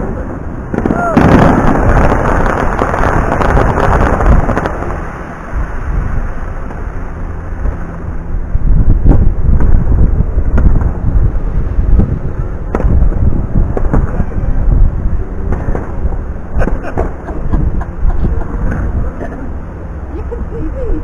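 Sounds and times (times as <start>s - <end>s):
deep rumble: 0.0s - 21.0s
firework bangs: 0.7s - 5.1s, 12.7s - 14.3s.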